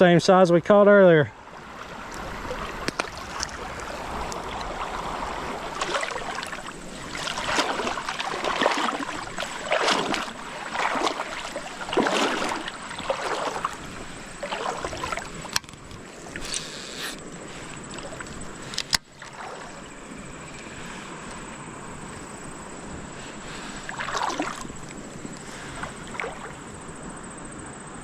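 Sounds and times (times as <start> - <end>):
creek water sloshing: 1.4 - 27.0.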